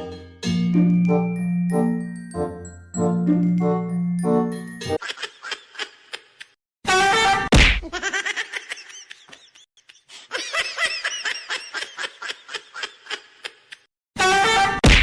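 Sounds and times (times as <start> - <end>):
laughter in rapid bursts: 5.0 - 6.6, 7.8 - 13.9.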